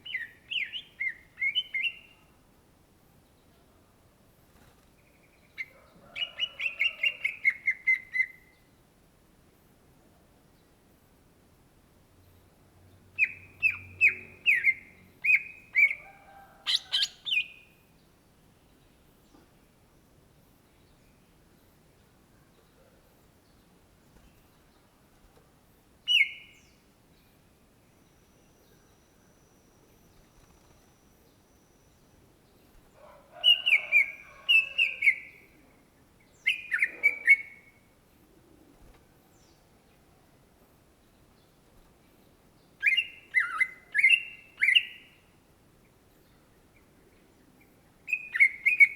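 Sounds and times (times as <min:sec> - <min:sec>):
bird singing whistled notes: 0:00.0 - 0:02.2, 0:05.6 - 0:08.5, 0:13.2 - 0:16.0, 0:16.7 - 0:17.7, 0:26.1 - 0:26.8, 0:36.3 - 0:37.8, 0:42.8 - 0:45.2, 0:48.1 - 0:48.9.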